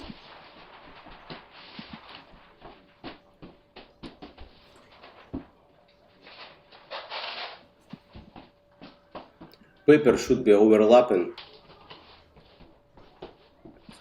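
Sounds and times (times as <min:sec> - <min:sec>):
paper rustling: 0:00.0 - 0:03.2, 0:04.6 - 0:05.6, 0:06.2 - 0:08.2
faint steady hum: 0:00.0 - 0:14.0.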